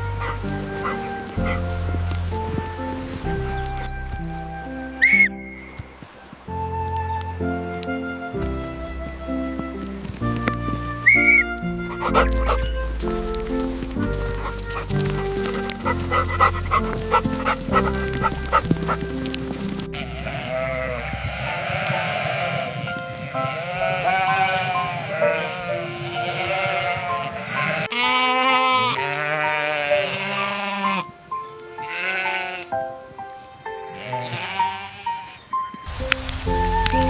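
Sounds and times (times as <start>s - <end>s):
sheep bleating: 0.0s - 2.2s, 19.9s - 31.1s, 31.7s - 32.8s, 33.9s - 35.6s
background music: 0.0s - 37.0s.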